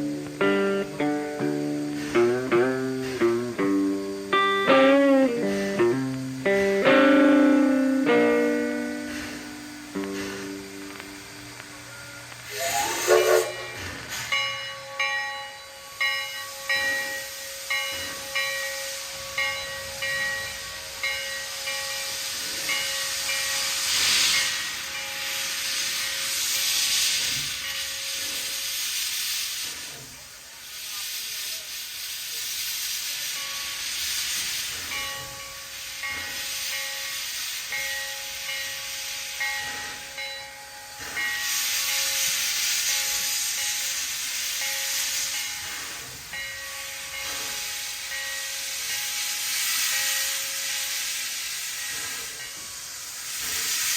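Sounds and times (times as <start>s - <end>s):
steam hissing: 0.0s - 53.9s
locomotive bell ringing: 6.5s - 26.6s, 33.2s - 51.0s.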